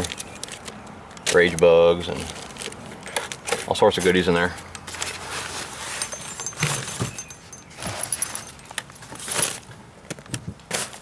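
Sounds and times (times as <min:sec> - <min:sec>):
fabric and packaging rustling: 0:00.0 - 0:03.9, 0:04.8 - 0:11.0
light metallic jingling: 0:05.7 - 0:09.1.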